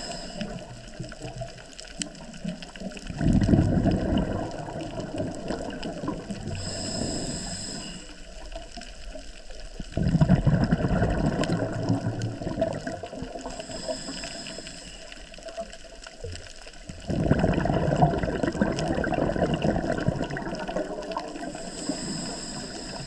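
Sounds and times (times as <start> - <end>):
hissing inhale through regulator: 0.0 - 1.1, 3.2 - 8.9, 13.3 - 15.8, 19.9 - 23.0
exhaled bubbles rushing: 0.0 - 6.8, 9.8 - 13.7, 15.7 - 21.9.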